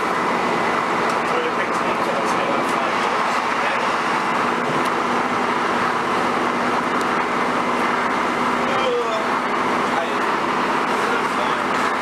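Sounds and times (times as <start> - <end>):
diesel engine drone: 0.0 - 12.0
steady hum: 0.0 - 12.0.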